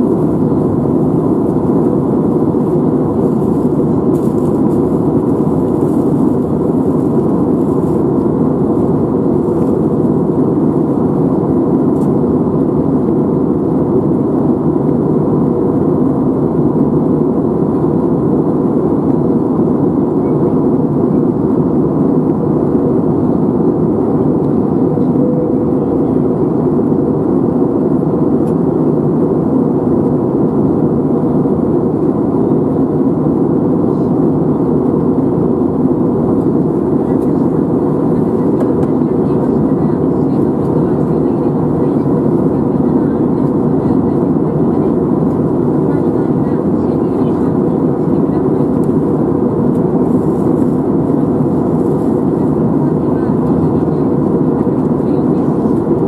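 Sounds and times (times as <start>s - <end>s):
aircraft engine and airflow drone: 0.0s - 56.0s
faint steady tone: 24.9s - 26.1s.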